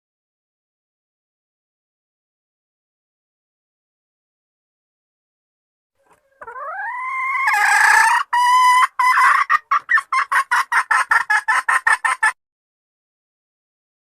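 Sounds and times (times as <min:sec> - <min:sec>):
hen calling with rising note: 0:06.0 - 0:10.7
hen clucking: 0:06.0 - 0:12.4.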